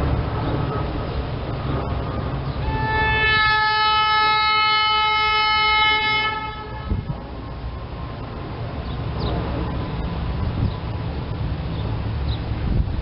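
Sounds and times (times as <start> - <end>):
train rumbling on tracks: 0.0 - 13.0
train air horn blast: 2.6 - 7.2.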